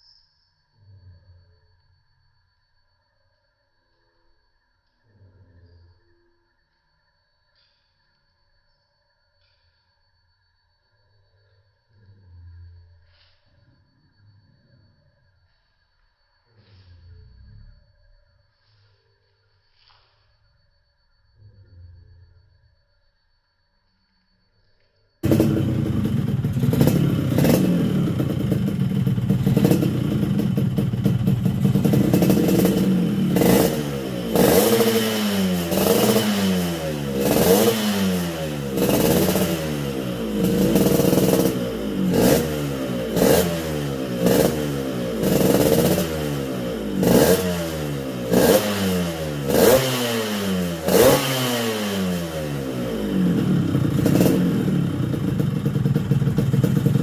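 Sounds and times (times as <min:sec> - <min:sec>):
motorbike engine idling and revving: 0:25.2 - 0:57.0.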